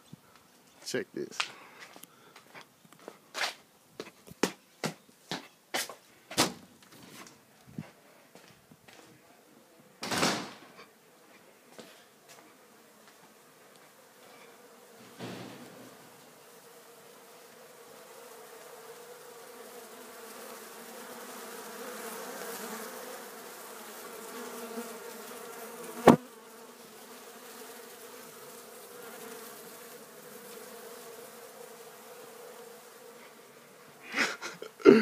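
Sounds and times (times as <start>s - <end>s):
sharp knock: 10.0s - 10.6s, 15.0s - 16.2s
bees buzzing: 12.3s - 34.9s.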